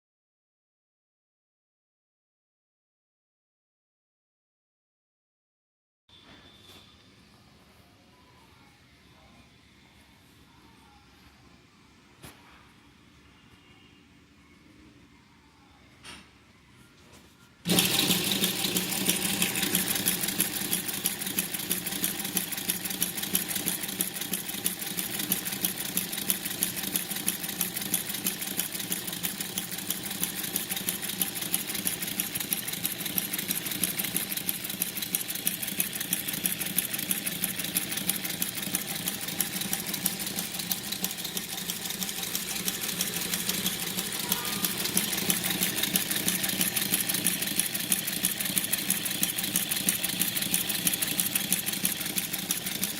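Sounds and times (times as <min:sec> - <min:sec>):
sewing machine running: 0:17.7 - 0:52.9.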